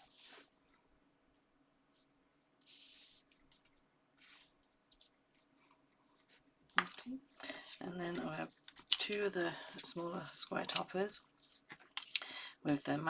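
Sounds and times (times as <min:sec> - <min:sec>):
paper and card being handled: 0:02.6 - 0:12.2.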